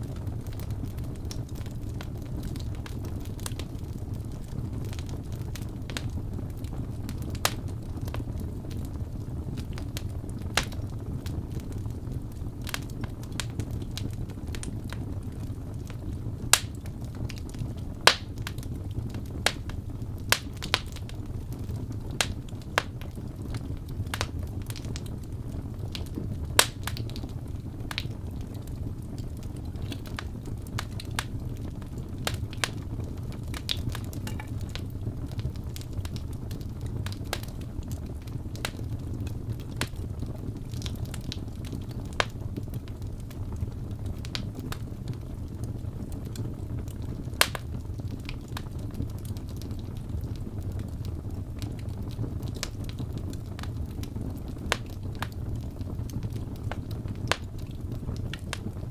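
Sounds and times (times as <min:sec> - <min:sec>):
fire rumbling: 0:00.0 - 0:58.9
wood crackling and popping: 0:00.0 - 0:58.9.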